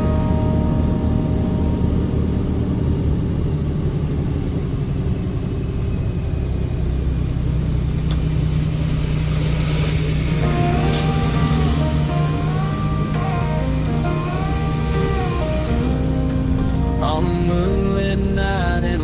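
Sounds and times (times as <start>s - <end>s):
car road and engine rumble: 0.0s - 19.0s
rain and tyre spray hiss: 8.2s - 17.0s.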